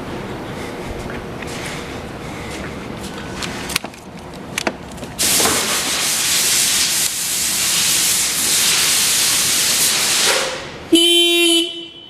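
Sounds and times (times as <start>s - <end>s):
loud steady hiss: 5.2s - 10.9s.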